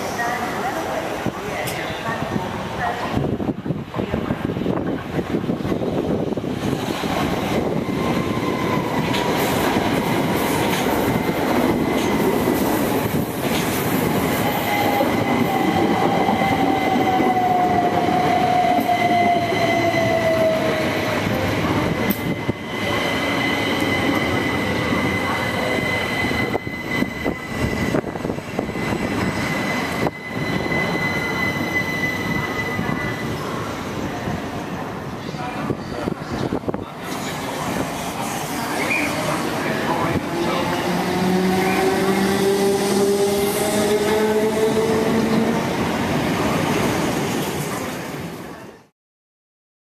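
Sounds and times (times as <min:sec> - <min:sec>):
high wheel squeal: 0:22.5 - 0:33.7, 0:38.6 - 0:39.8.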